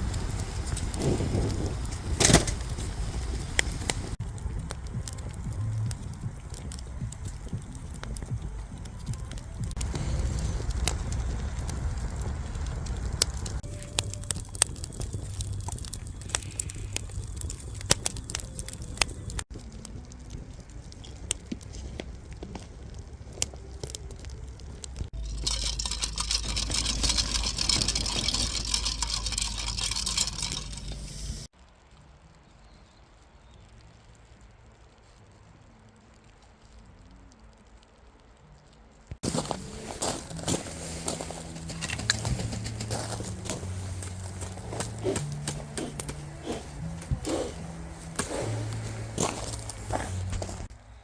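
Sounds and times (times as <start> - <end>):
wood fire crackling and popping: 0.0 - 51.0
steady hiss: 30.5 - 31.5.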